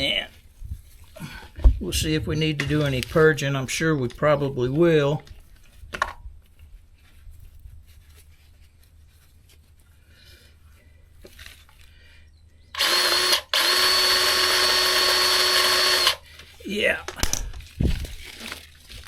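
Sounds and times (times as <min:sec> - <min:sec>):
faint handling sounds: 0:02.4 - 0:12.6, 0:16.2 - 0:19.0
grease gun motor whine: 0:12.7 - 0:16.3.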